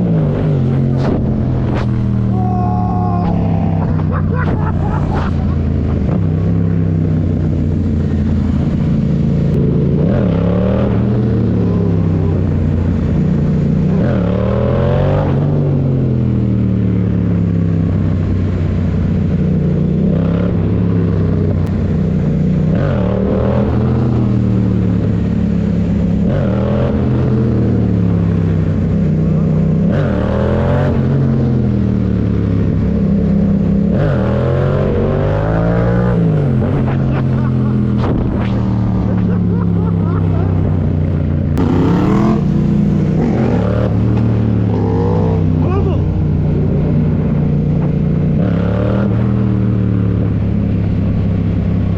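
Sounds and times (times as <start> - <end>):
motorcycle engine running: 36.0 - 51.9.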